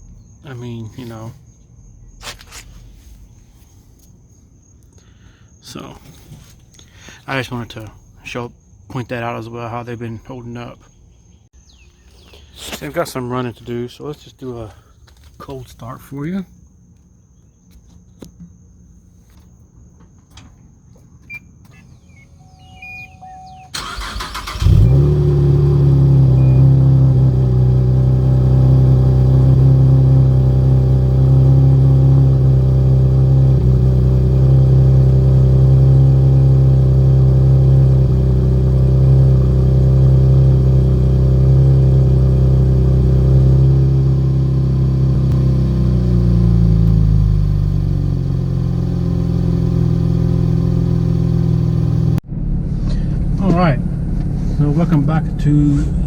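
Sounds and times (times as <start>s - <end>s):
car engine starting and idling: 21.2s - 56.0s
starter cranking: 23.8s - 25.1s.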